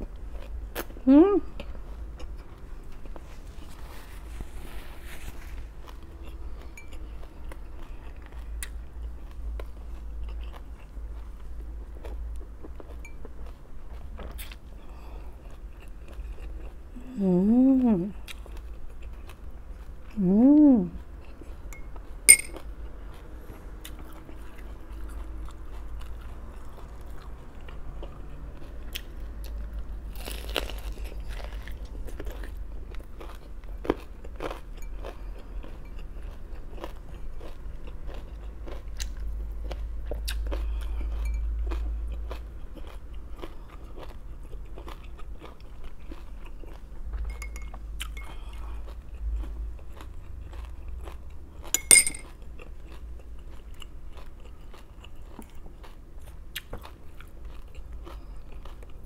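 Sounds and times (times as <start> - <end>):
low steady hum: 0.0 - 23.7, 38.3 - 59.0
crunching raw vegetables: 30.1 - 59.0.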